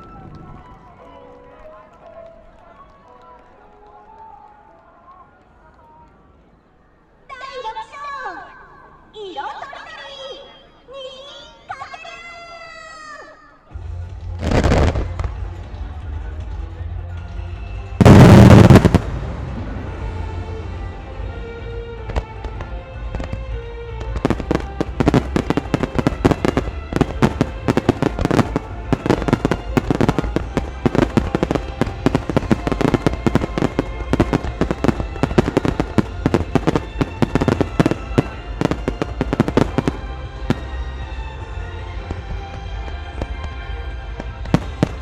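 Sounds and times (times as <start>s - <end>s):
fireworks popping and bursting: 18.0s - 19.5s, 24.2s - 41.4s, 44.2s - 45.0s.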